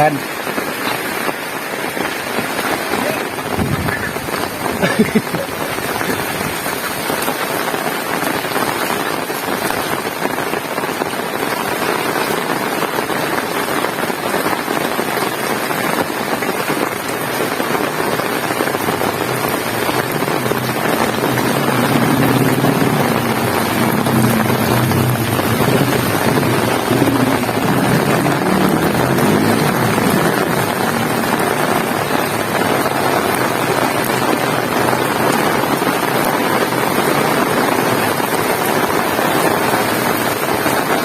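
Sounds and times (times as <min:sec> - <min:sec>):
heavy rain falling: 0:00.0 - 0:41.0
low engine hum: 0:18.8 - 0:33.6.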